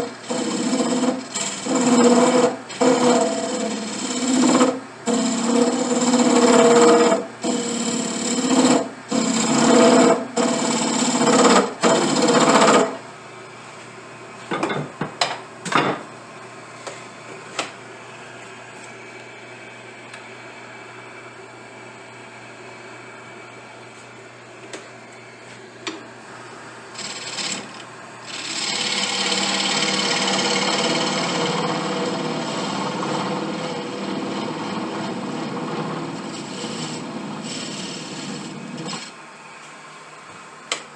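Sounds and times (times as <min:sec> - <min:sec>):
power tool cutting wood: 0:00.0 - 0:13.0, 0:26.9 - 0:39.1.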